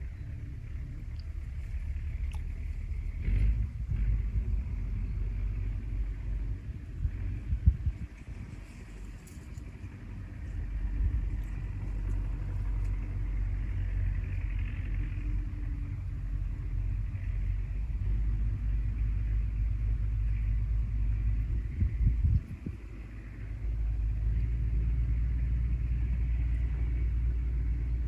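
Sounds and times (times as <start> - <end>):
low rumble: 0.0 - 28.0.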